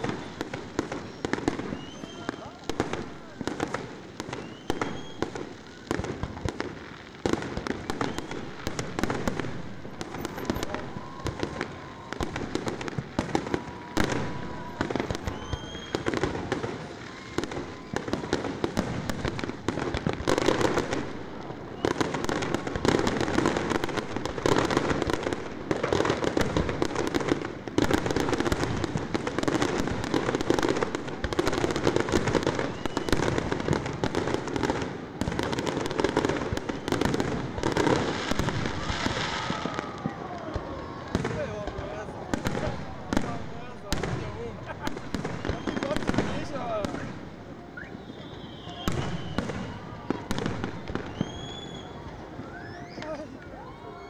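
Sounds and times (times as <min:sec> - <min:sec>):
firework whistles: 0:00.0 - 0:06.8, 0:07.6 - 0:27.1, 0:27.8 - 0:41.5, 0:42.5 - 0:54.0
fireworks bangs and crackles: 0:00.0 - 0:54.0.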